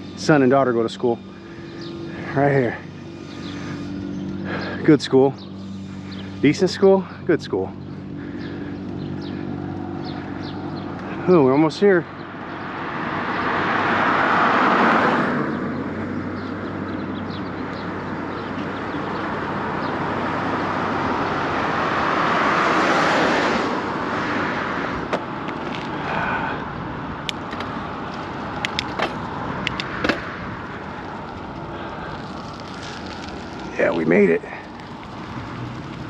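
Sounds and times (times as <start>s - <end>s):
cars passing: 0.0s - 36.0s
wind and road noise on bicycle: 0.0s - 36.0s.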